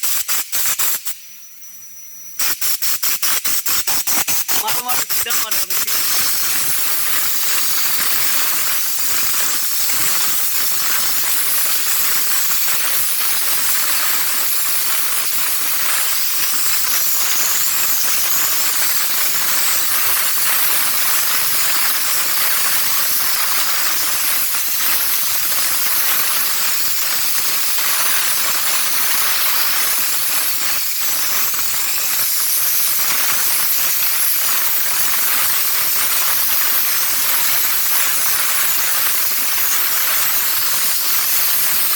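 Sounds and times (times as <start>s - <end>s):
spray gun hissing: 4.5s - 7.2s.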